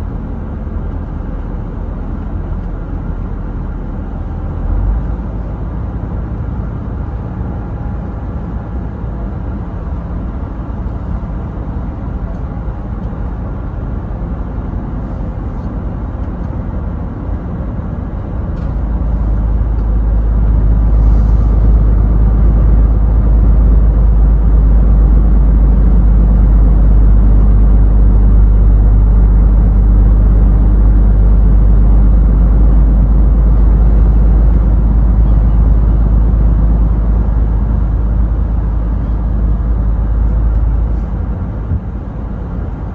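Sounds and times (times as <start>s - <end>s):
truck engine and road rumble: 0.0s - 42.9s.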